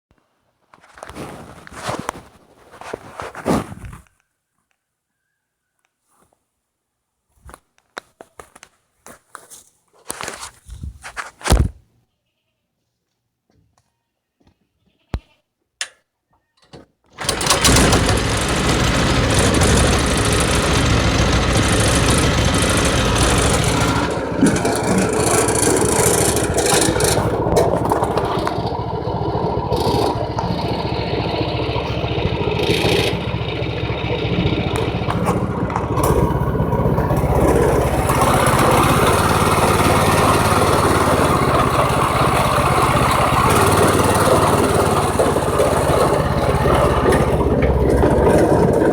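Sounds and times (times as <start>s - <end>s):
small engine running loudly: 17.2s - 48.9s.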